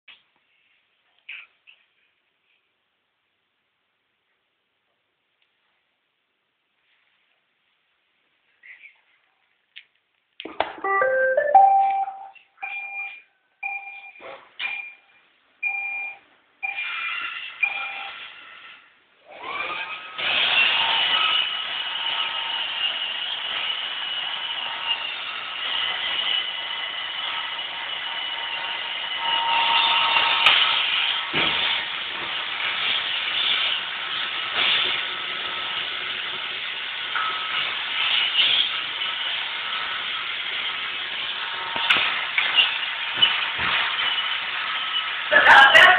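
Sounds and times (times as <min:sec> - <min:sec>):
robot vacuum short beeps: 0:10.8 - 0:12.4.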